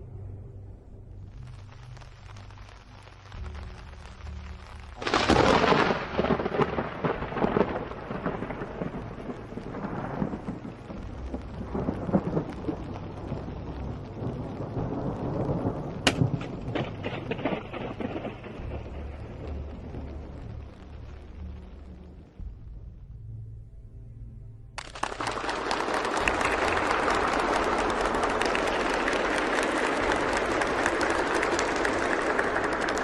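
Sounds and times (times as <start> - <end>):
thunder clap and rumble: 1.2 - 23.2, 24.8 - 33.0
sharp thunder crack: 5.0 - 21.0.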